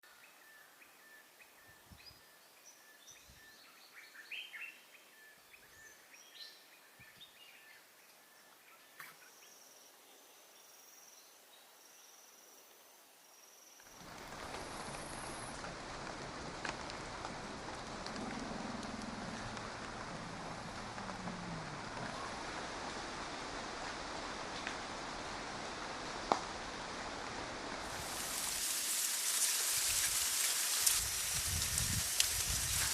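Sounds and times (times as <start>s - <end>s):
faint insect drone: 0.1s - 32.9s
steady rushing noise: 14.0s - 32.9s.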